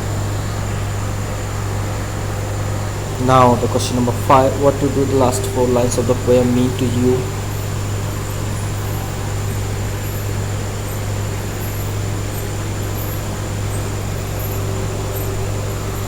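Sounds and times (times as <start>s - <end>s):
even hiss: 2.8s - 9.1s.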